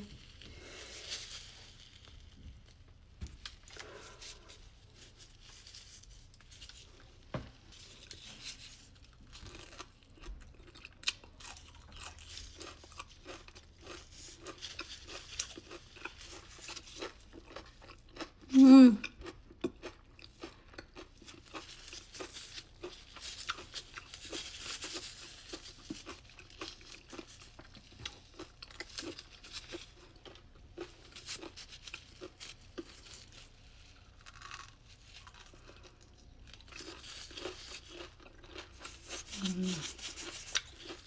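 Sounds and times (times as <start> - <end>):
person chewing: 3.4 - 41.0.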